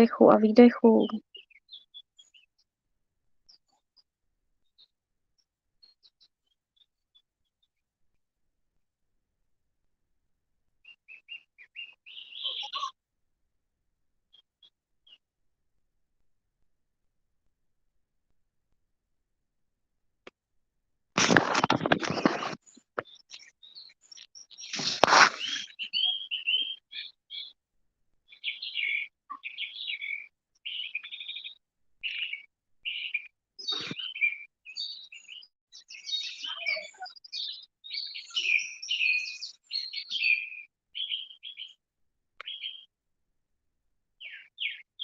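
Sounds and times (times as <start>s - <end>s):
songbird singing: 0.0s - 2.7s, 10.8s - 13.0s, 22.7s - 27.6s, 28.3s - 41.8s, 42.4s - 42.9s, 44.2s - 45.0s.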